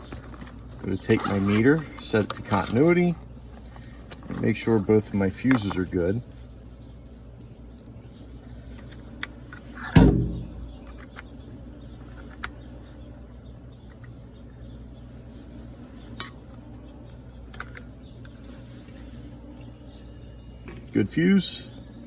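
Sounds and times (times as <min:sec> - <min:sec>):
steady low hum: 0:00.0 - 0:22.0
loud clunk: 0:09.8 - 0:10.9.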